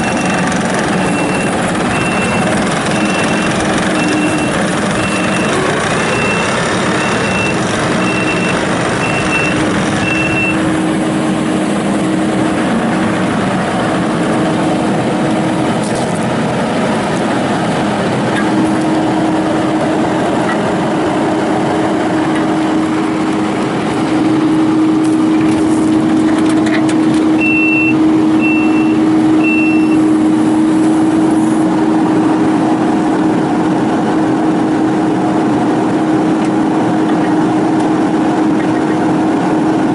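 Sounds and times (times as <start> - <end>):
diesel engine running: 0.0 - 39.9
reversing alarm beeps: 1.0 - 10.6, 27.4 - 30.1.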